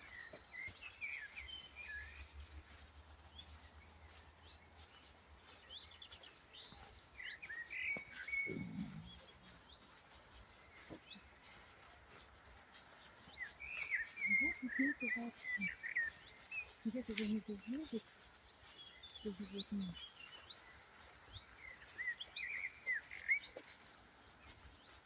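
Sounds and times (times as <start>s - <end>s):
songbirds chirping and singing: 0.0s - 25.0s
short sweeping bird calls: 7.2s - 11.2s.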